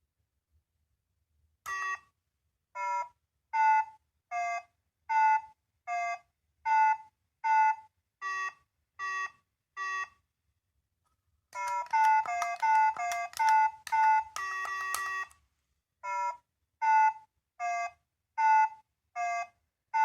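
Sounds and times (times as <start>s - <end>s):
toy speaker beeping melody: 1.7s - 2.0s, 11.6s - 15.4s.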